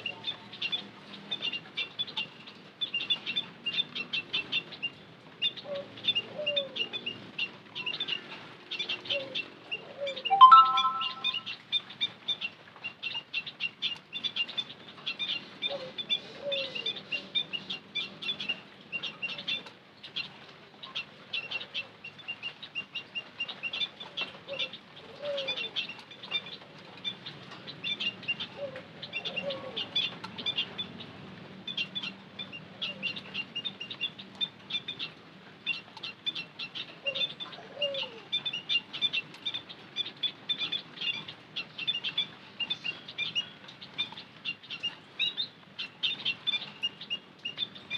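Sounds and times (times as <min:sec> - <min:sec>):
munias chirping: 0:10.3 - 0:11.5.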